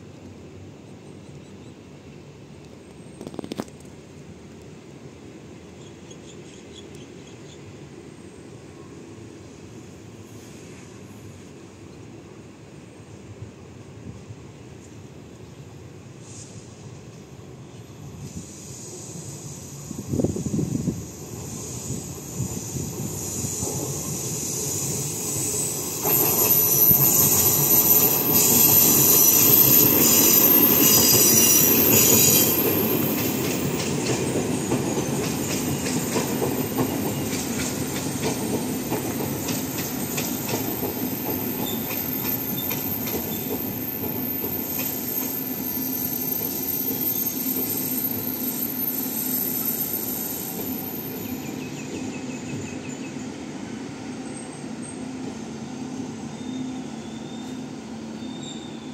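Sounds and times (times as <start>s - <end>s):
train wheels squealing: 14.8s - 58.9s
train wheels rolling and clattering: 20.0s - 53.4s.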